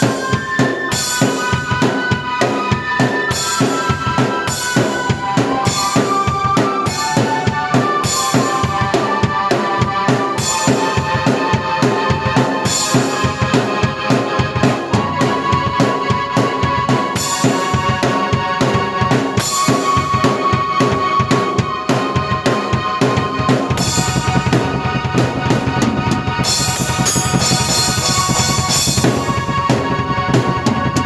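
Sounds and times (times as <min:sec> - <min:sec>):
keyboard melody: 0:00.0 - 0:31.0
drum beat: 0:10.2 - 0:31.0.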